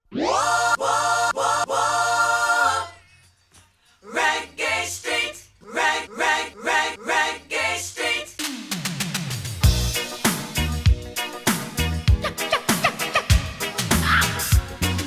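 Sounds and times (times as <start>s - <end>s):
voices singing a cappella: 0.2s - 3.2s, 3.9s - 8.5s.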